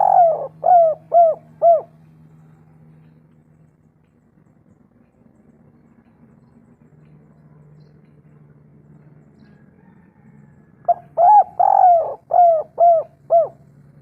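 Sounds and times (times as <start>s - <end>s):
dove cooing: 0.0s - 2.1s, 10.8s - 14.0s.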